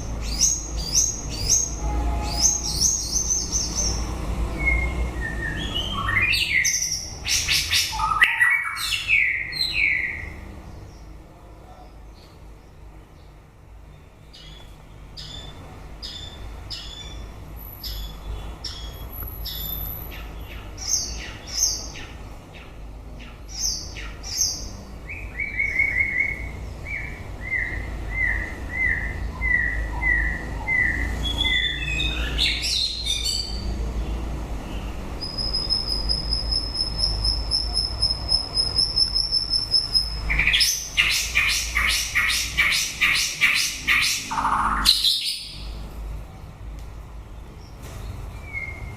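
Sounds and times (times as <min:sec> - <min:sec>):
songbird singing varied song: 0:14.3 - 0:33.7, 0:35.2 - 0:45.8.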